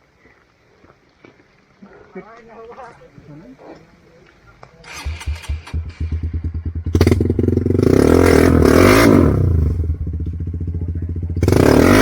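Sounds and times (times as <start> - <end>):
motorcycle engine revving: 4.8 - 12.0.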